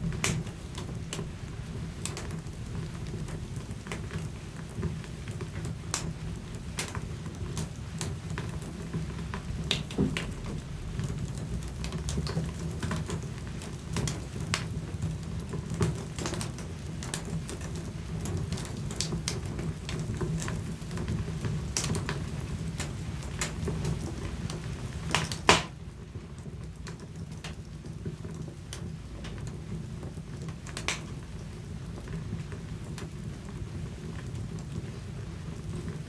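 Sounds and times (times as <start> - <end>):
low steady fire rumble: 0.0 - 36.0
wood fire crackling and popping: 0.0 - 36.0.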